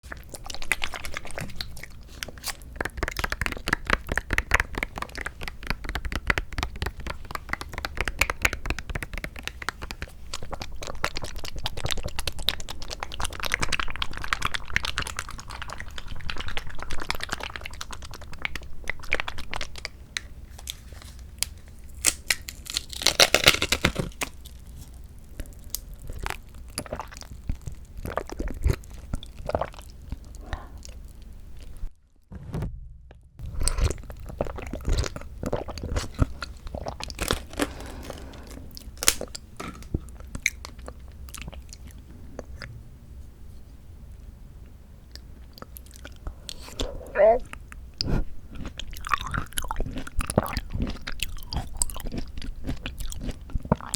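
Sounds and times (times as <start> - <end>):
plastic packaging tearing: 22.0 - 24.3.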